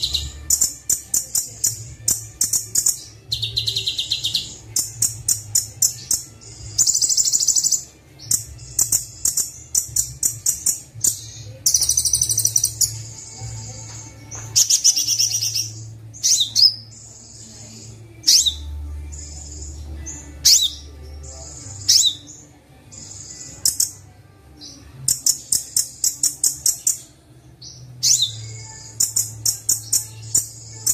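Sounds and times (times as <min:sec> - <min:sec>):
sunbird singing trills: 0:00.0 - 0:24.0.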